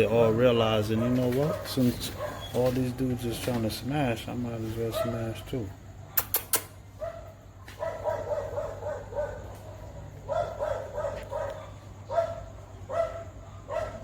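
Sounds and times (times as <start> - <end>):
dog yelping: 0.9 - 2.7, 7.0 - 14.0
sharp clicks: 6.2 - 6.8.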